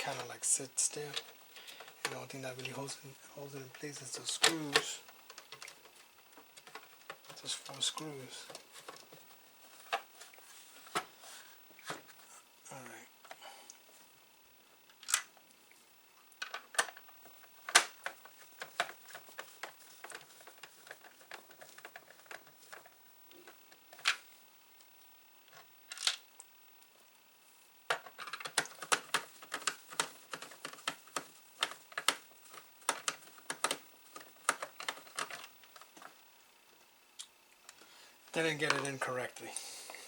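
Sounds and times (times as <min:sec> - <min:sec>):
plastic and metal parts clicking: 0:27.9 - 0:36.1.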